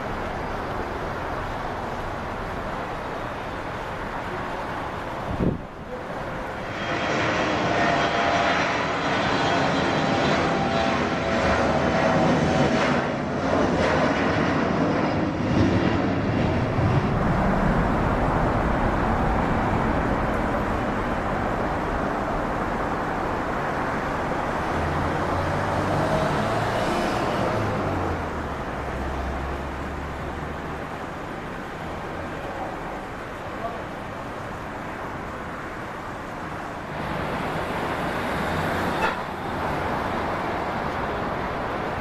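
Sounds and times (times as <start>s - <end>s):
jet engine rush with high whine: 0.0s - 42.0s.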